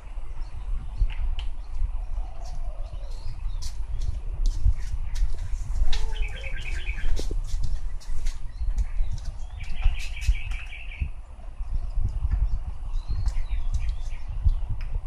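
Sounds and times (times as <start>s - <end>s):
bird high chirps: 5.9s - 11.1s.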